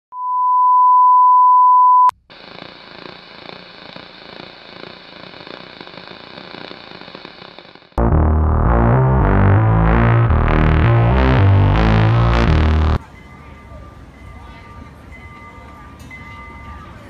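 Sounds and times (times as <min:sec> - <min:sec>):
sine test tone: 0:00.1 - 0:02.1
music: 0:08.0 - 0:13.0.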